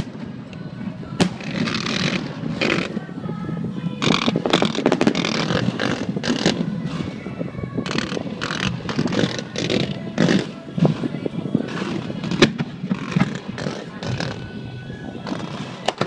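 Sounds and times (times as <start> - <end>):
fireworks bursts and crackles: 0.0 - 16.0
steady low rumble: 0.0 - 16.0.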